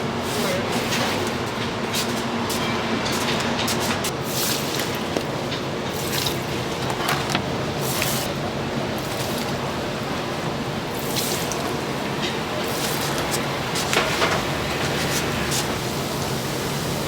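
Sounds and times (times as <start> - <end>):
oil sizzling while deep-frying: 4.1 - 17.0.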